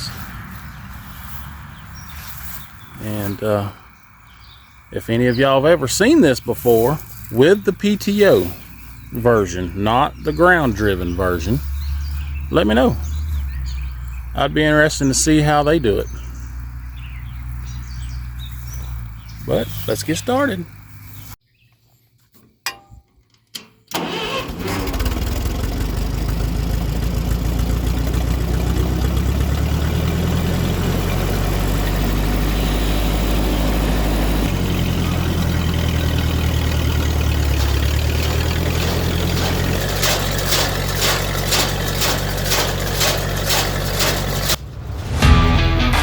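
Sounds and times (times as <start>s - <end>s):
tractor engine running: 0.0s - 21.4s, 23.9s - 46.0s
rapid even clatter: 35.4s - 44.6s.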